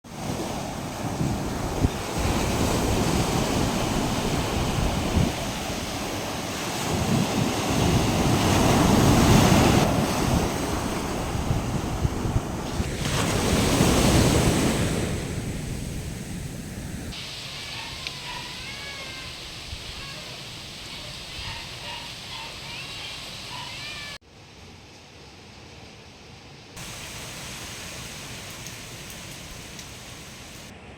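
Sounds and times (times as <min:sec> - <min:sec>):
wind blowing hard in gusts: 0:00.1 - 0:17.2.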